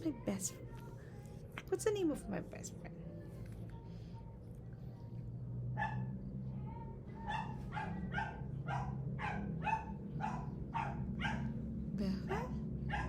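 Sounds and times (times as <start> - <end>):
dog barking: 5.7 - 11.6, 12.4 - 13.0.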